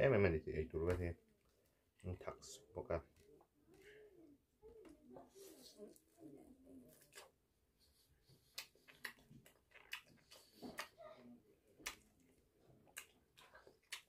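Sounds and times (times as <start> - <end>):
chewing with wet mouth clicks: 6.9 - 7.4, 8.2 - 11.0, 11.6 - 14.0.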